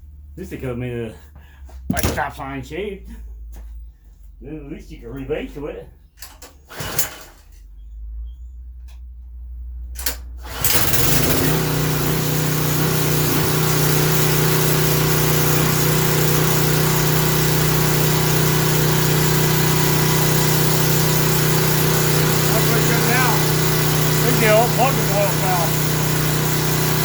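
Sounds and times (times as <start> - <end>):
pressure washer engine starting: 6.6 - 7.6, 10.0 - 27.0.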